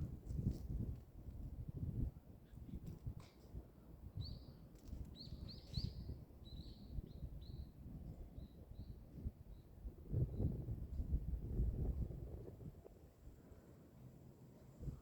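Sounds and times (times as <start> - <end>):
bird chirping: 4.2 - 7.7.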